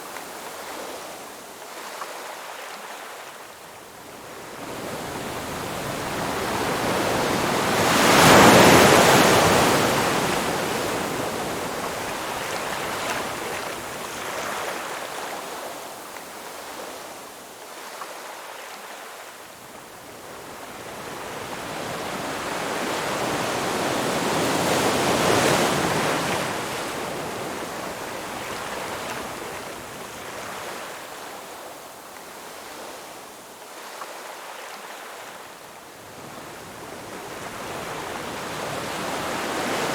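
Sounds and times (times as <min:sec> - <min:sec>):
ocean waves crashing: 0:05.2 - 0:13.4.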